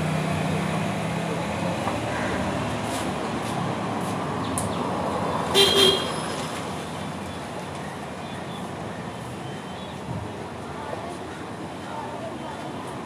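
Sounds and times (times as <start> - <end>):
short honks: 5.6 - 6.2.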